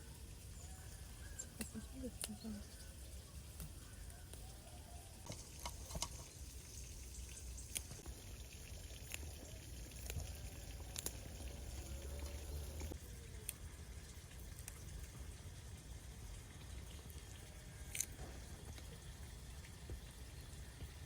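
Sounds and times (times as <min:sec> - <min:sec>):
liquid pouring and dripping: 0:05.2 - 0:21.0.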